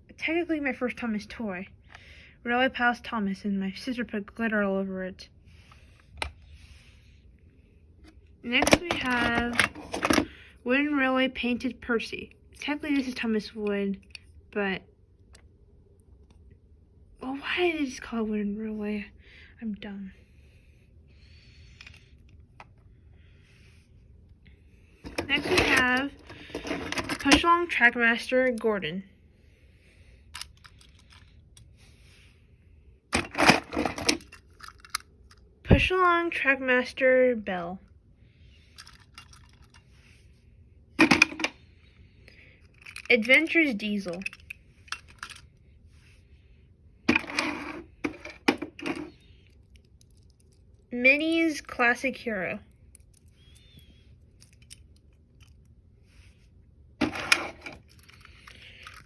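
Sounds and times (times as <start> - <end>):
toy trains clattering: 25.0 - 27.6, 30.4 - 31.3, 33.2 - 35.4, 38.7 - 39.9, 42.6 - 45.5, 57.0 - 59.0
plastic toy trains clicking: 44.0 - 45.4.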